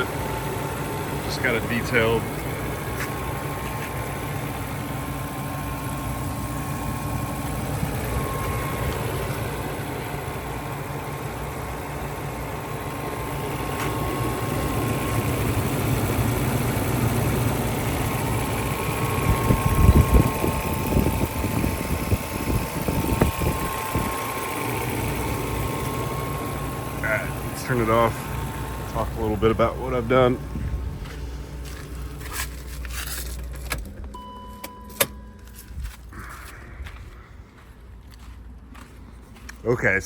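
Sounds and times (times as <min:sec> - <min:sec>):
thin steady whine: 0:00.0 - 0:33.4
car engine idling: 0:00.0 - 0:40.0
irregular low thumps: 0:19.0 - 0:24.4, 0:30.4 - 0:31.4.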